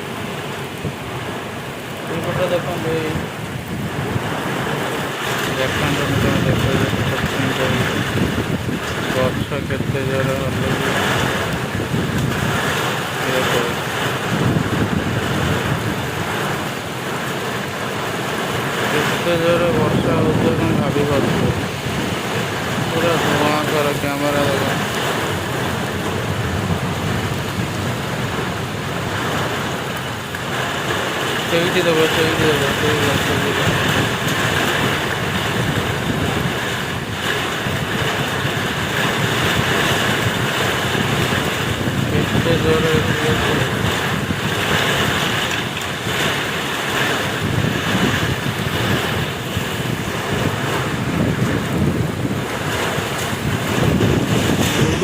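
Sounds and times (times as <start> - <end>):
heavy downpour: 0.0 - 55.0
heavy rain: 0.0 - 55.0
strong gusting wind: 0.0 - 55.0
wind buffeting microphone: 0.0 - 55.0.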